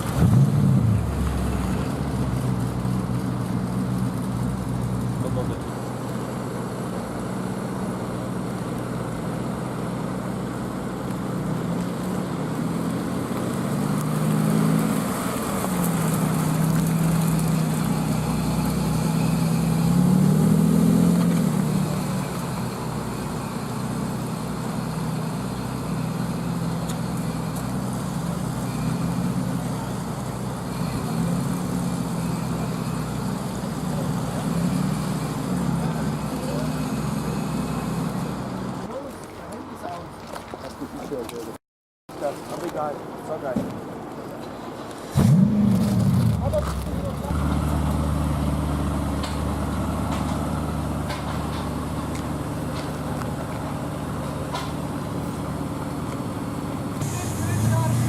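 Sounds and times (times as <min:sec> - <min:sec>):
car engines in traffic: 0:00.0 - 0:58.0.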